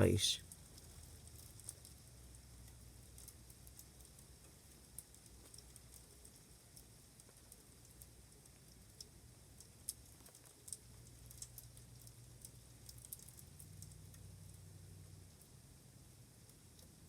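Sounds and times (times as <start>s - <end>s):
low steady hum: 0.0s - 9.9s
ice pellets ticking: 0.2s - 14.3s.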